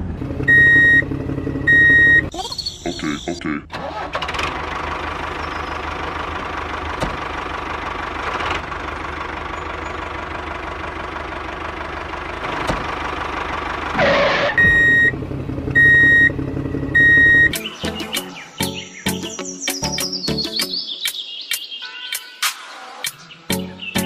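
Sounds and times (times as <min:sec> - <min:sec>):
high electronic beeps: 0:01.7 - 0:03.4, 0:14.5 - 0:15.1, 0:17.0 - 0:17.7.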